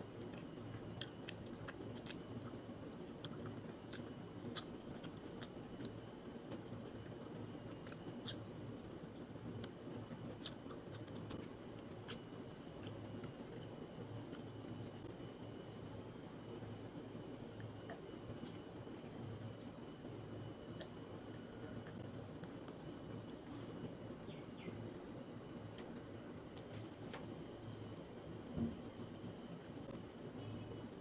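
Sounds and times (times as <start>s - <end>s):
person chewing crunchy food: 0.0s - 15.1s.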